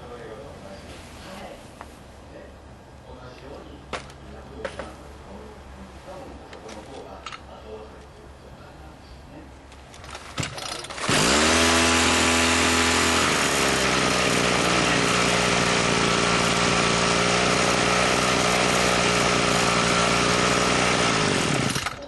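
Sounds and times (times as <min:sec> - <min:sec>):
motorised tool running: 0:10.6 - 0:22.0.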